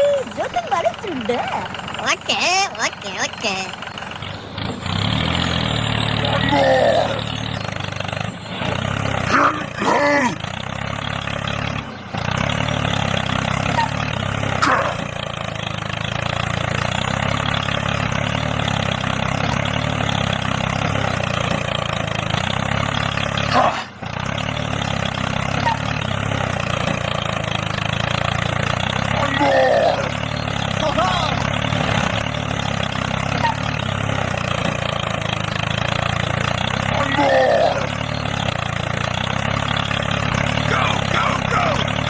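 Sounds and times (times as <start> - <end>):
toy tractor motor droning: 0.0 - 42.0.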